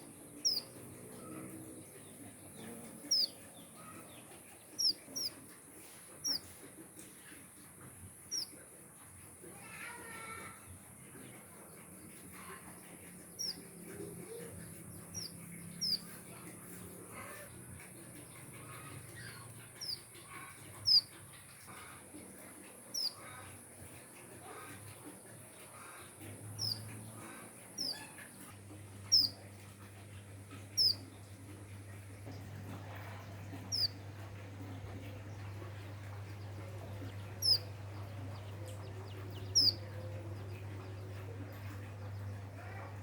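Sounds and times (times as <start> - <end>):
finches chirping: 0.0 - 6.6, 8.2 - 8.6, 11.2 - 43.0
fainter bird calls: 0.4 - 1.4, 2.6 - 5.5, 6.2 - 6.6, 8.2 - 8.6, 13.4 - 17.6, 18.2 - 22.1, 22.7 - 23.6, 25.6 - 31.3, 32.4 - 34.3, 35.0 - 42.9.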